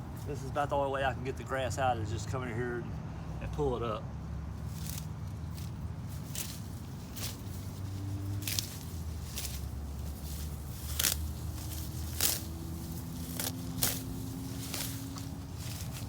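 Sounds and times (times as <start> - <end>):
grass being pulled up by hand: 4.6 - 16.0.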